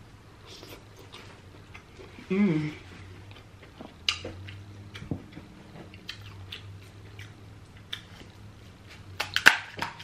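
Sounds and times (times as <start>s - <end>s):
steady low hum: 0.0s - 10.0s
soft chewing: 0.4s - 10.0s.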